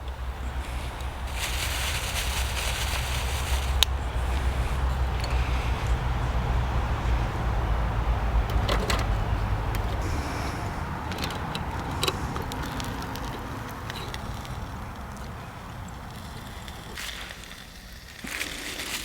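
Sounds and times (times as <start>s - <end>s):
wind buffeting microphone: 0.0s - 17.0s
equipment clicks: 10.8s - 14.6s.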